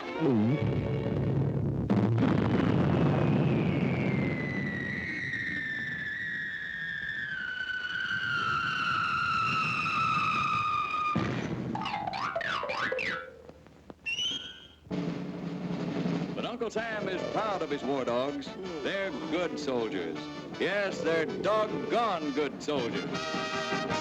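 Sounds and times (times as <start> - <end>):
cartoon whistle sliding down: 3.6 - 11.2, 14.1 - 14.8.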